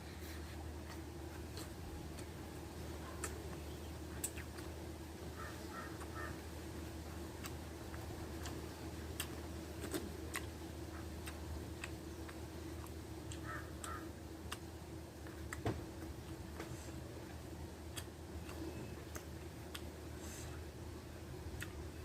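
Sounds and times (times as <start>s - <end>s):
steady low hum: 0.0s - 22.0s
chewing mouth clicks and smacks: 4.2s - 4.8s, 9.2s - 15.6s, 17.9s - 19.9s.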